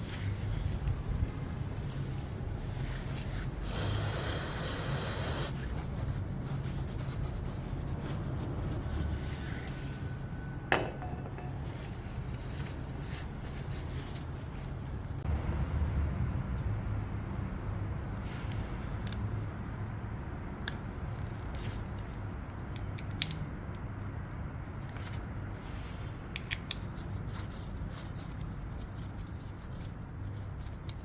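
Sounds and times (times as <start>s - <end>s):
rubbing hissing noise: 2.8s - 9.1s.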